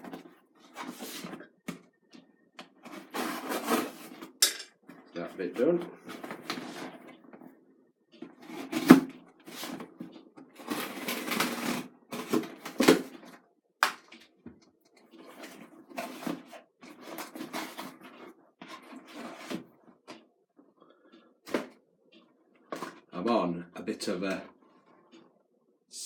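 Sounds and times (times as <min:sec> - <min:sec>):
packaging rustling and tearing: 0:10.6 - 0:13.0.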